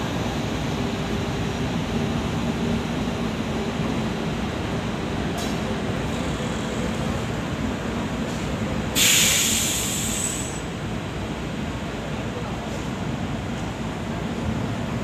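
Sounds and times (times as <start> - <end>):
loud hiss: 9.0 - 10.6.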